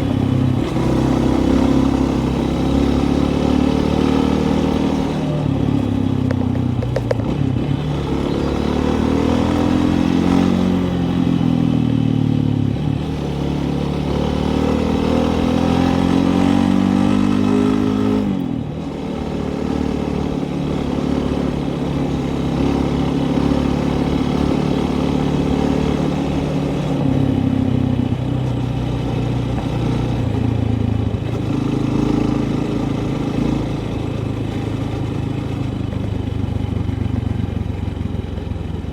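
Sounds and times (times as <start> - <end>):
vehicle engine revving: 0.0 - 11.8, 12.6 - 35.6.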